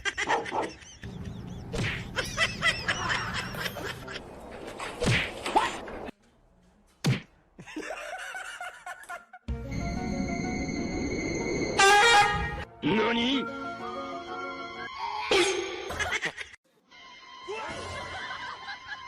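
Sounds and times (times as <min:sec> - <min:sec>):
people laughing: 0:00.0 - 0:04.8, 0:07.6 - 0:09.5, 0:17.7 - 0:19.0
sharp smack: 0:05.0 - 0:05.4, 0:07.0 - 0:07.3
music: 0:09.5 - 0:15.3, 0:16.7 - 0:19.0.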